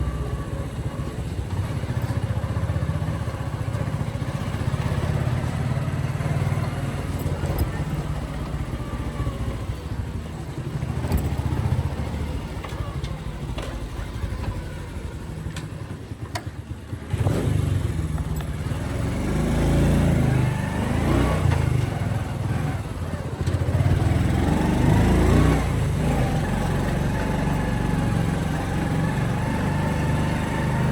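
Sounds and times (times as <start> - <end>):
motorcycle engine running: 0.0 - 30.9
louder engine sound: 16.8 - 30.9.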